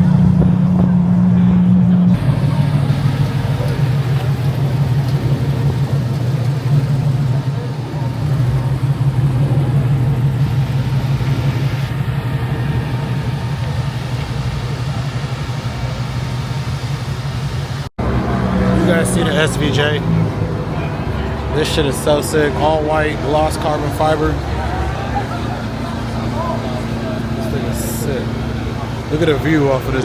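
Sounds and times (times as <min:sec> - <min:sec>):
car engine running: 0:00.0 - 0:30.0
background voices: 0:18.0 - 0:30.0.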